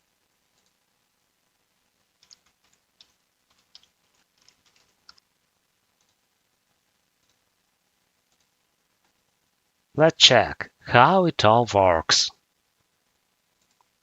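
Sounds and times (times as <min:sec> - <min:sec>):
typing on computer keyboard: 0:02.2 - 0:05.2.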